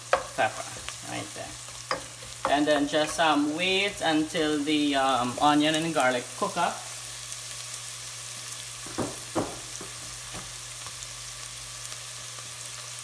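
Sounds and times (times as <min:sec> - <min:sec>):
vegetables sizzling in oil: 0:00.0 - 0:13.0
wooden spoon scraping pot: 0:00.1 - 0:04.1.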